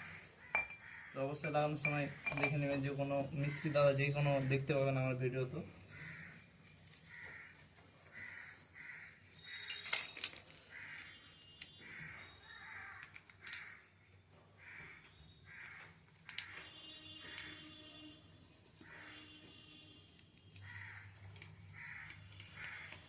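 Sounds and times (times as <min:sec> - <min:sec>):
crow cawing: 0:00.0 - 0:01.3, 0:05.9 - 0:09.7, 0:10.6 - 0:11.2, 0:11.8 - 0:13.9, 0:14.6 - 0:16.0, 0:18.8 - 0:19.4, 0:20.6 - 0:23.0
metal parts clinking: 0:00.5 - 0:00.8, 0:01.4 - 0:02.8, 0:09.4 - 0:11.8, 0:12.9 - 0:13.8, 0:16.1 - 0:17.8.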